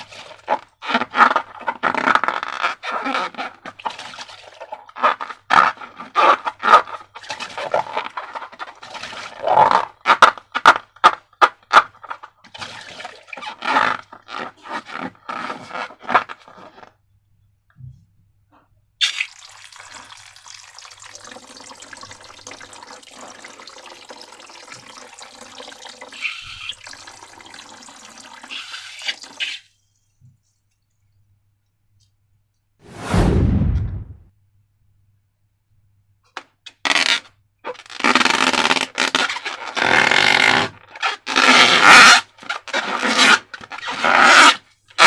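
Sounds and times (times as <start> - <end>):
liquid pouring: 19.0 - 29.8.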